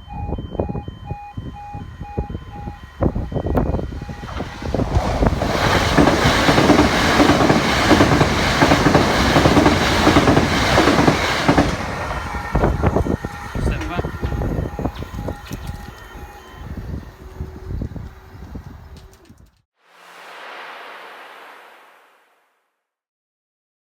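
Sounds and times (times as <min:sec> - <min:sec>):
level crossing alarm pulses: 0:00.0 - 0:06.9, 0:11.4 - 0:18.3
train wheels clattering on rails: 0:03.2 - 0:16.4.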